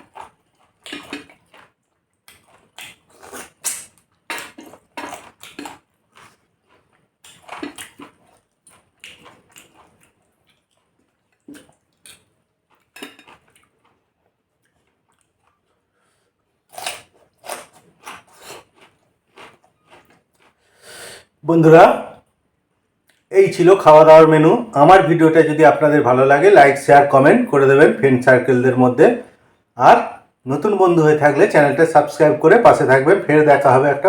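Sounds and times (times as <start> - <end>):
person chewing with lip smacks: 0.0 - 14.0
cutlery clinking against plate: 12.9 - 13.4.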